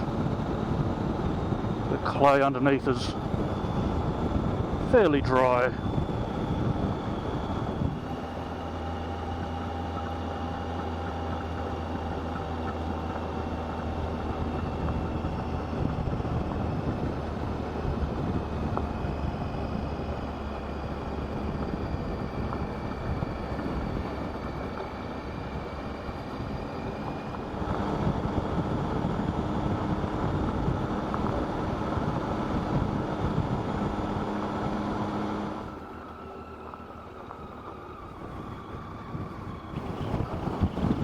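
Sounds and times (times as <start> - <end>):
wind noise on microphone: 0.0 - 35.9, 38.0 - 41.0
motorcycle engine running: 0.0 - 36.0, 39.4 - 41.0.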